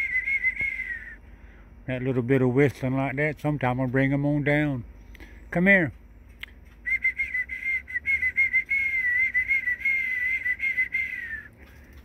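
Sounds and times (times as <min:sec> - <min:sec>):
man whistling a wavering note: 0:00.0 - 0:01.2, 0:06.8 - 0:11.5.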